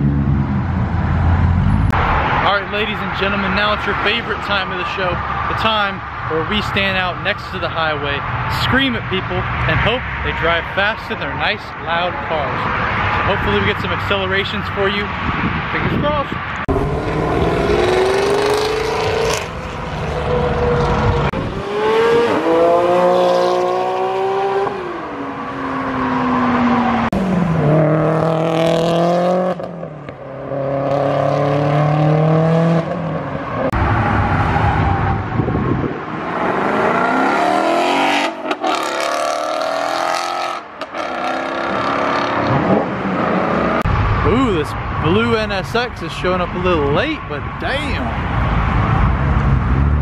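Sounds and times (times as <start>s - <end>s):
car engines accelerating past: 16.6s - 44.4s.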